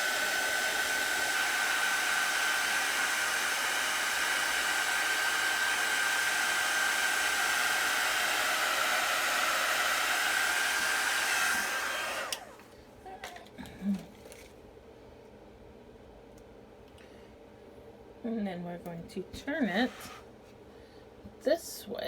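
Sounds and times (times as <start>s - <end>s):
hair dryer blowing with whine: 0.0s - 12.7s, 19.8s - 20.2s.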